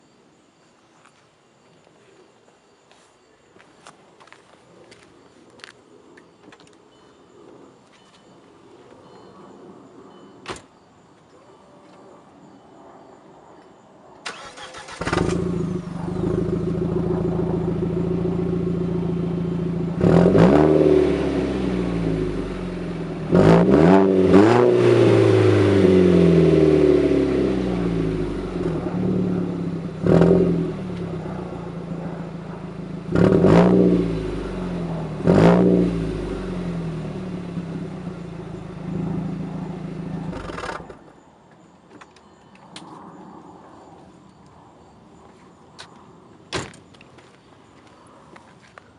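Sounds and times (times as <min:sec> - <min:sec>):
car engine idling and revving: 0:14.3 - 0:41.1.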